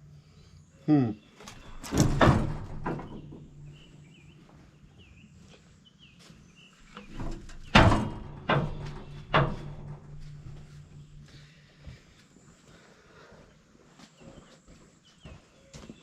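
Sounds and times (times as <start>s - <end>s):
log clunking onto sawmill: 1.5s - 3.9s, 7.0s - 11.3s.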